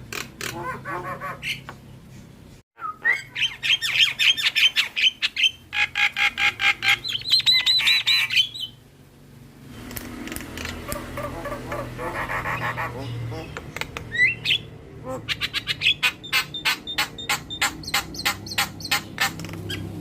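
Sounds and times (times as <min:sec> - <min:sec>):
bird singing harsh notes: 0:02.8 - 0:08.8, 0:14.1 - 0:19.9
soft bird calls: 0:02.8 - 0:08.8, 0:10.6 - 0:20.0.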